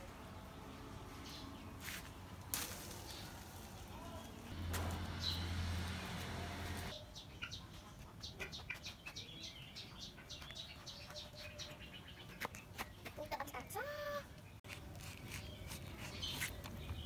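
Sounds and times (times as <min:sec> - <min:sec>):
birds chirping: 0:00.2 - 0:17.0
rustling noise: 0:01.8 - 0:05.1
low hum: 0:02.6 - 0:06.9.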